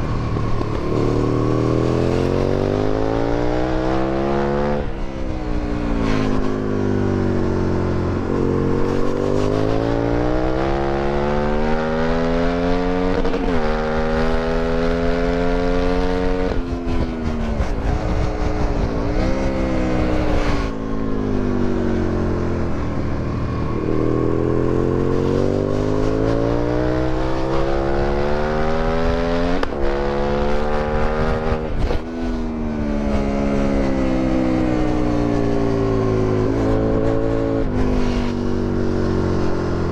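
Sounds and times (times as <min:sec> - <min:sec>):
motorcycle engine accelerating: 0:00.0 - 0:39.9
wind rushing: 0:16.3 - 0:22.7.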